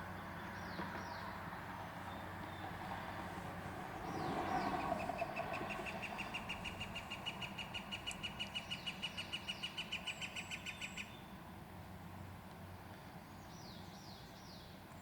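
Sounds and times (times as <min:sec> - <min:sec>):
woodpecker rapid call: 0:04.7 - 0:11.1.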